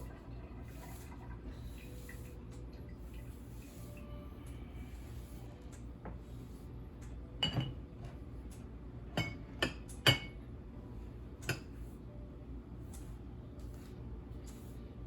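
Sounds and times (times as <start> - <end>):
dishes and glassware clinking: 7.4 - 8.2, 9.2 - 10.4.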